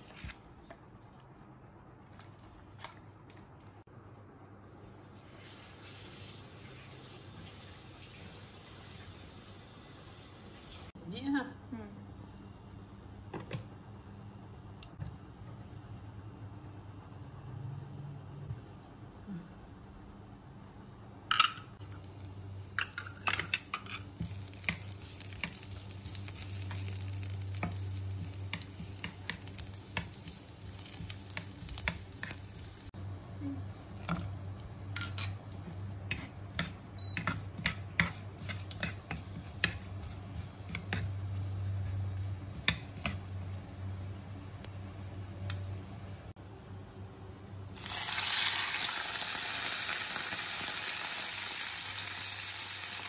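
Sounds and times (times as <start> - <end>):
food sizzling in hot oil: 5.2 - 10.9, 21.8 - 33.0, 47.6 - 53.0
low steady hum: 10.9 - 47.8
spatula clicking and scraping pan: 22.8 - 32.7, 35.0 - 43.3.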